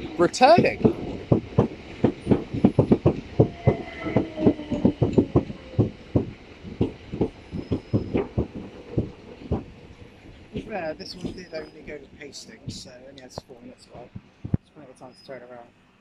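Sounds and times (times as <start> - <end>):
train wheels clacking over rail joints: 0.0 - 11.7.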